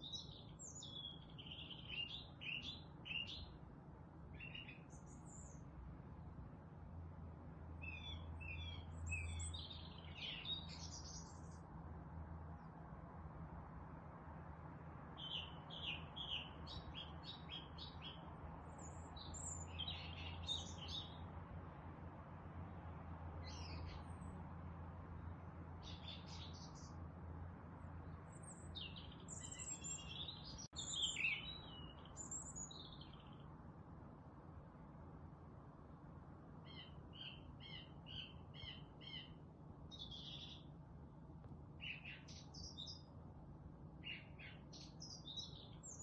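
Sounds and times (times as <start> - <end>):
songbirds chirping and trilling: 0.0 - 46.0.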